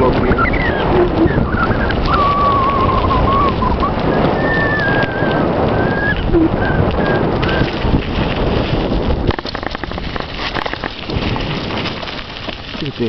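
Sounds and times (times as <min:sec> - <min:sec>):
bicycle tyre noise: 0:00.0 - 0:13.0
wind buffeting microphone: 0:00.0 - 0:13.0
thin wavering whistle: 0:00.3 - 0:07.6.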